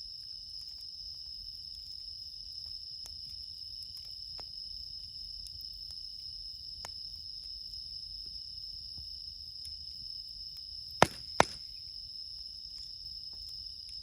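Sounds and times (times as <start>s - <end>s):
crickets chirping: 0.0s - 14.0s
campfire snapping: 11.0s - 11.8s.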